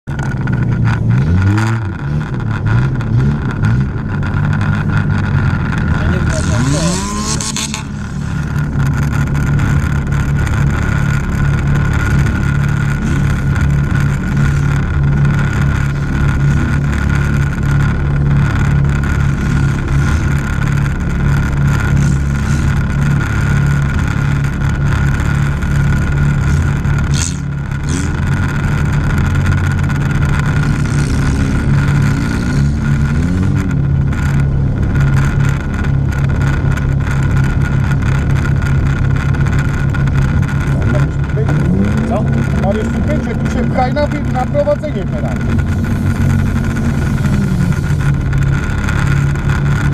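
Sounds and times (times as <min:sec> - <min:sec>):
car engine running: 0:00.0 - 0:49.9.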